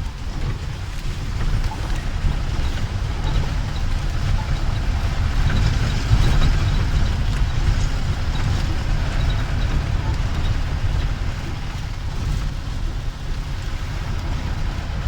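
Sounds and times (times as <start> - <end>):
vehicle engine low rumble: 0.0 - 15.0.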